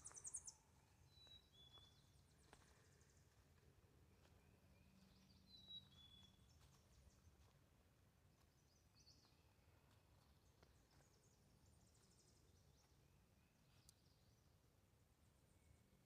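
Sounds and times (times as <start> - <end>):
songbirds calling: 0.0 - 7.7.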